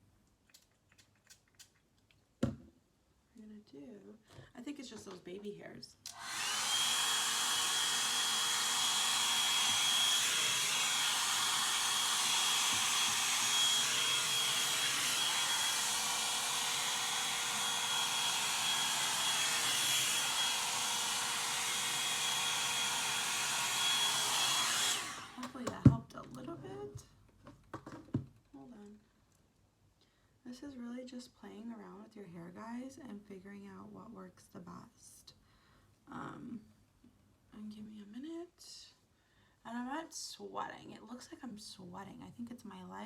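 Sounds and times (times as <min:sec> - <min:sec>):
hair dryer brush running: 0:06.1 - 0:25.7.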